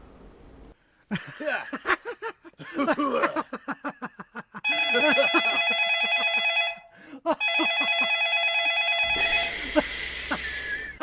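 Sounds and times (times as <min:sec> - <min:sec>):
telephone ringtone: 0:04.7 - 0:09.6.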